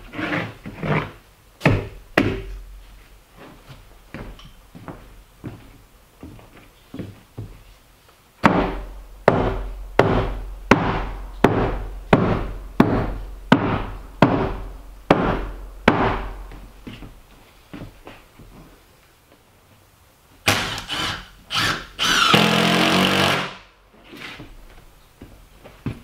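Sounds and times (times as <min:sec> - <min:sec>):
hard ringing knocks: 0:08.5 - 0:16.4.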